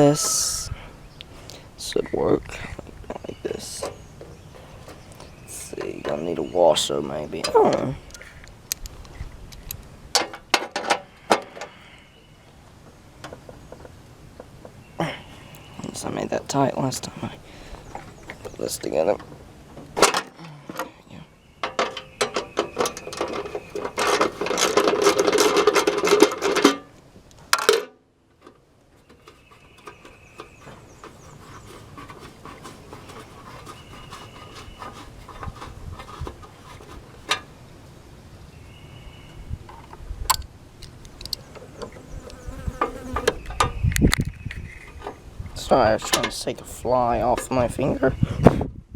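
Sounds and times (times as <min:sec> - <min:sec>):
handling clicks and taps: 0:39.7 - 0:45.2
housefly buzzing: 0:42.2 - 0:43.3.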